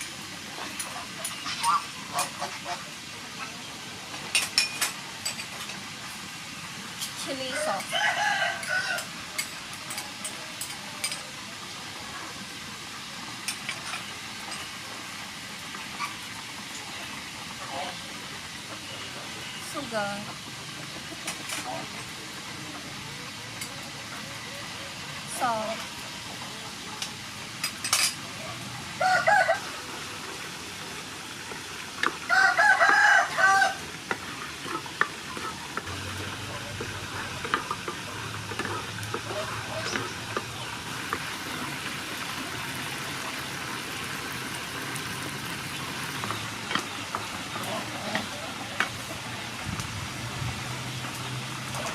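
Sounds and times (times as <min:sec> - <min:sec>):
food sizzling in a pan: 0:00.0 - 0:51.9
rooster crowing: 0:07.6 - 0:09.4, 0:29.0 - 0:29.9, 0:32.3 - 0:33.9
utensils clicking and tapping: 0:34.0 - 0:41.3.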